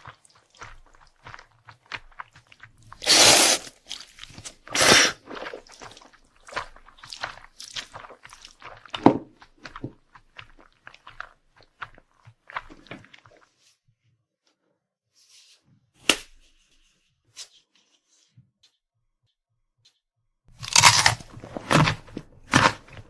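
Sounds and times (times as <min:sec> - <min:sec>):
close-up chewing: 0:00.0 - 0:13.5, 0:20.5 - 0:23.0
crunchy bites into crisp food: 0:00.1 - 0:09.0, 0:20.6 - 0:23.0.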